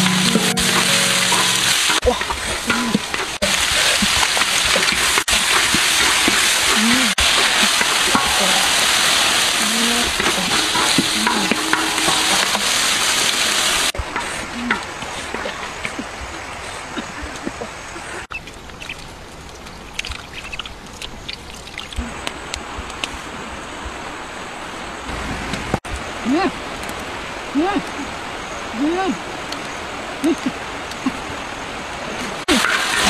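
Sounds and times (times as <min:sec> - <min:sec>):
meat sizzling in a wok: 0:03.4 - 0:13.9.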